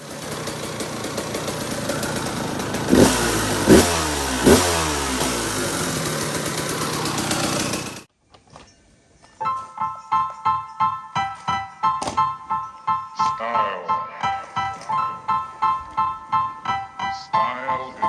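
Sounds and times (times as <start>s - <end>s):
dirt bike engine revving: 0.0s - 8.1s.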